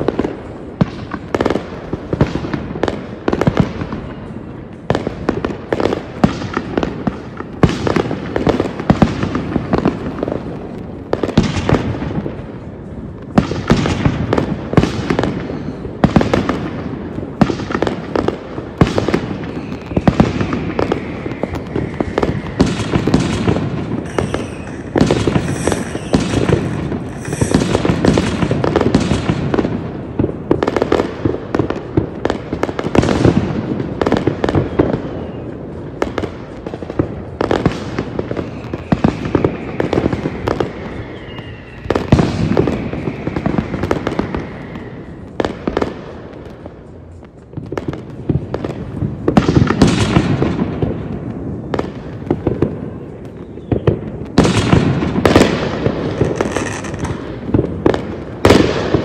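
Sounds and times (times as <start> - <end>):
firework bursts and bangs: 0.0 - 59.0
faint falling whistles: 19.4 - 23.4, 24.0 - 28.6, 34.6 - 35.6, 38.3 - 45.3.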